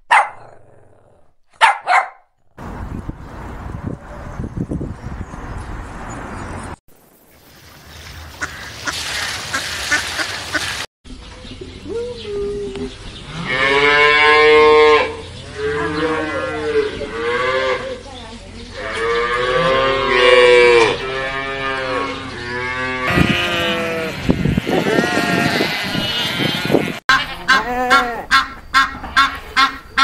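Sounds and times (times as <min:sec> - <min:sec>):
cattle mooing: 0:18.8 - 0:28.1.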